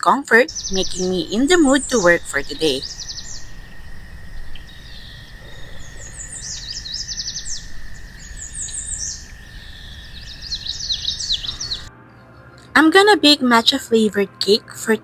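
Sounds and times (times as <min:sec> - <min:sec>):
low background rumble: 0:00.5 - 0:11.9
small birds chirping: 0:00.5 - 0:12.7.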